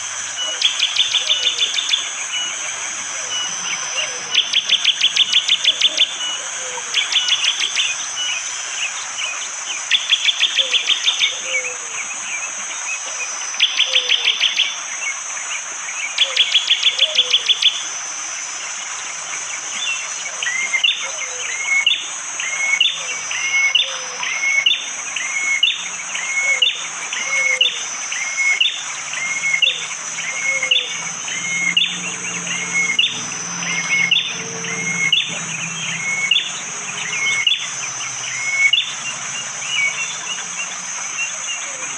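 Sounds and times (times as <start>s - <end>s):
high-pitched insect buzz: 0.0s - 41.9s
bird singing trills: 0.3s - 12.5s, 13.6s - 14.8s, 16.0s - 17.8s, 19.7s - 41.9s
low hum: 28.9s - 41.9s.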